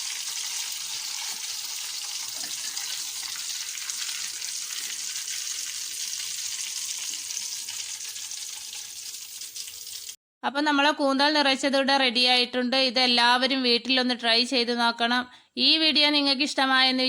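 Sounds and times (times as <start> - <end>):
hot oil sizzling in a pan: 0.0 - 10.2.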